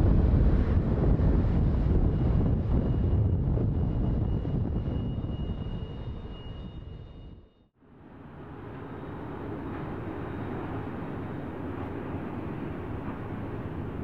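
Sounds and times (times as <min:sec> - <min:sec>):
freight train rumble: 0:00.0 - 0:07.2, 0:07.8 - 0:14.0.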